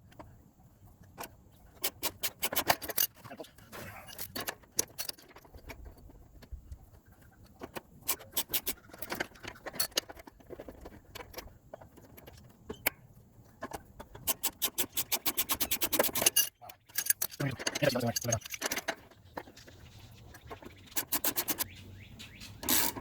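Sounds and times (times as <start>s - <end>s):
metal tools clicking and clinking: 1.8s - 6.5s, 7.6s - 13.0s, 13.6s - 19.7s, 20.4s - 21.7s.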